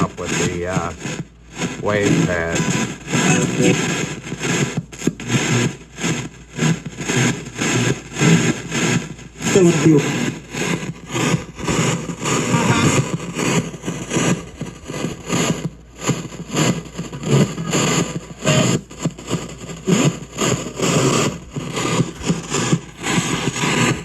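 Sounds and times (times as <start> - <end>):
radio static: 0.0 - 4.6, 9.4 - 24.0
clipped broadcast sound scraps: 0.0 - 5.7, 6.7 - 24.0.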